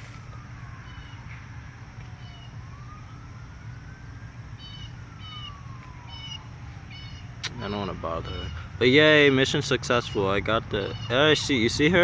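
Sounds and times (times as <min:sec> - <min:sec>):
siren wailing: 0:00.0 - 0:12.0
high bird chirps: 0:04.6 - 0:07.4, 0:09.9 - 0:11.4.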